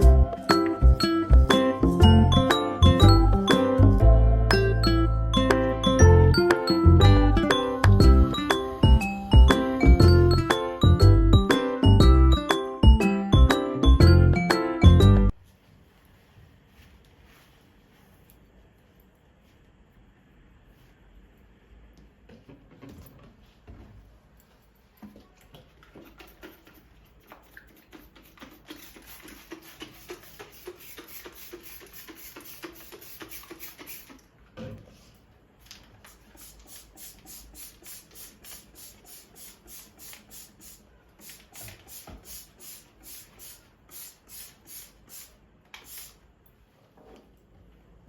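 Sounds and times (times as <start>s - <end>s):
brush scrubbing a surface: 26.4s - 34.2s.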